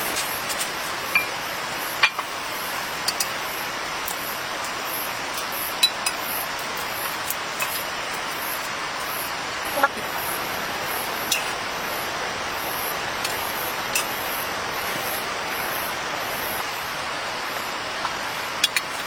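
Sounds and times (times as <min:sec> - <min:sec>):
rain hissing: 0:00.0 - 0:19.0
drip-like ticks: 0:03.0 - 0:03.4.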